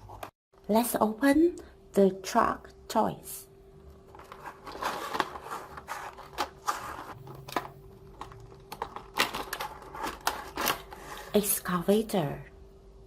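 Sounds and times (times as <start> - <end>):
packaging crinkling: 4.1 - 11.2.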